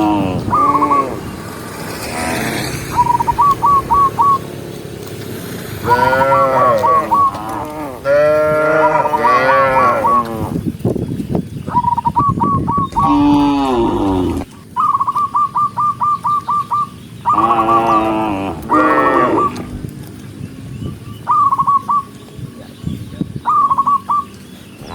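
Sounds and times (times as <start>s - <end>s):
cows mooing: 0.0s - 1.3s, 2.0s - 2.9s, 5.8s - 10.6s, 12.9s - 14.5s, 17.3s - 19.7s.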